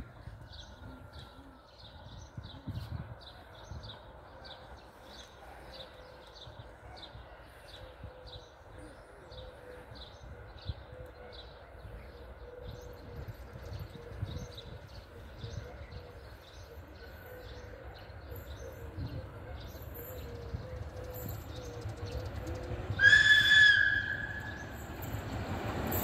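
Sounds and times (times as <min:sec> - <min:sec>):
wind rumble on microphone: 0:00.0 - 0:05.0, 0:09.8 - 0:16.3.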